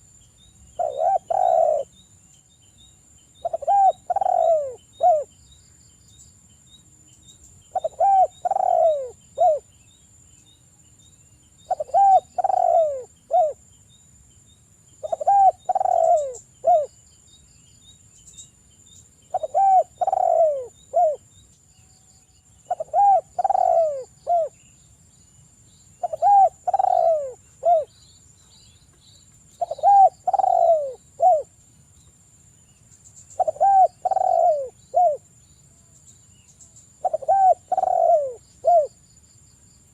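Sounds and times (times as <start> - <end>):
dove cooing: 0.8 - 1.9, 3.4 - 5.3, 7.7 - 9.7, 11.7 - 13.6, 15.0 - 16.9, 19.3 - 21.2, 22.7 - 24.6, 26.0 - 27.9, 29.6 - 31.5, 33.4 - 35.2, 37.0 - 39.0.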